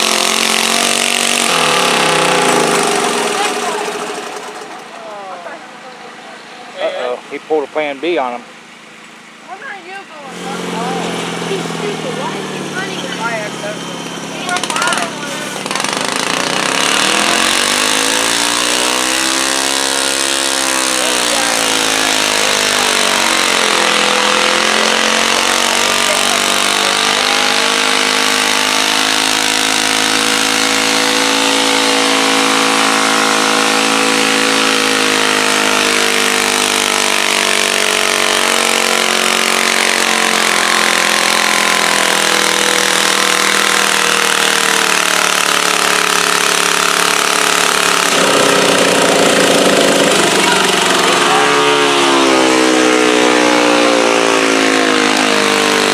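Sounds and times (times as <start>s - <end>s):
tractor engine at high revs: 0.0s - 55.9s.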